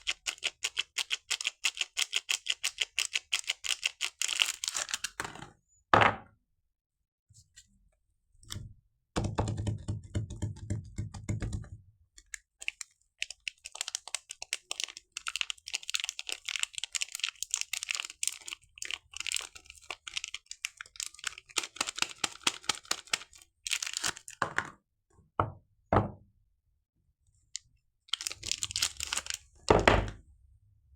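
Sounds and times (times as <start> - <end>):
wrapper crackling: 0.0 - 5.2, 12.6 - 24.4, 28.1 - 29.4.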